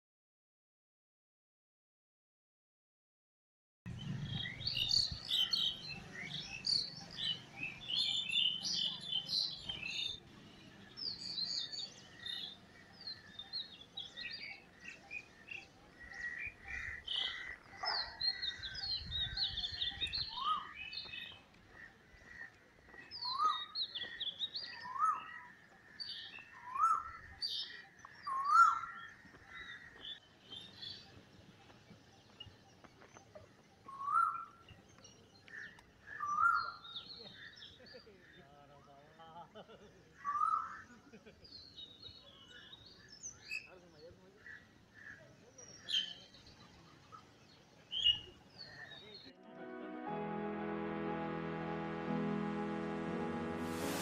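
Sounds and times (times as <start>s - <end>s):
wild birds chirping and singing: 3.9s - 49.3s
bird upswept call: 4.0s - 34.6s
steady high tone: 49.4s - 54.0s.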